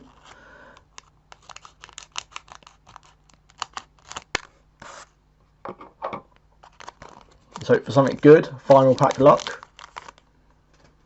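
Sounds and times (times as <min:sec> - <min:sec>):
scissors snipping foil wrapper: 0:01.3 - 0:04.4, 0:08.7 - 0:10.2.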